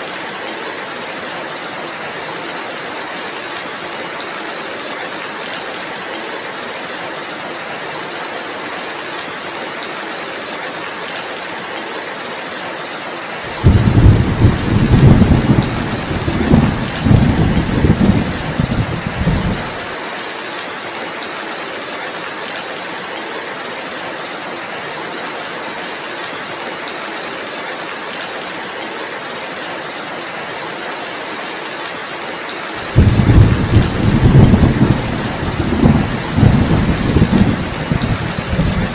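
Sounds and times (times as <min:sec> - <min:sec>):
heavy rainfall: 0:00.0 - 0:38.9
thunder rumbling: 0:13.6 - 0:19.8, 0:32.9 - 0:38.9.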